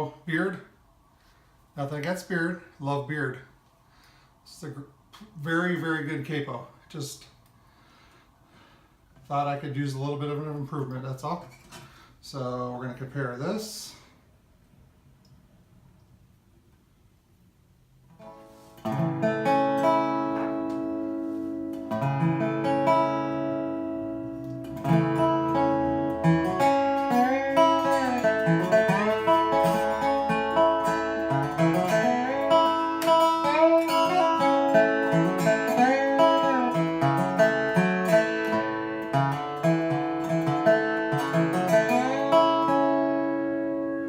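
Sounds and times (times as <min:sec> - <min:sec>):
slide resonator guitar: 0:18.1 - 0:44.0.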